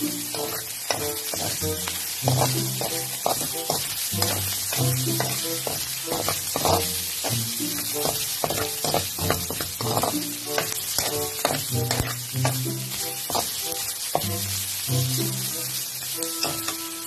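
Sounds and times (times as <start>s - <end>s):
spatula scraping a pan: 0.0s - 14.4s, 15.2s - 17.0s
background music: 0.0s - 17.0s
meat sizzling in a pan: 0.0s - 17.0s.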